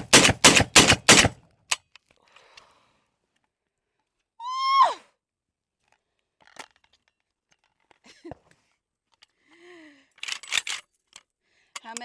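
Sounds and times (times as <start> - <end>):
high-pitched vocal whoop: 4.4 - 5.1.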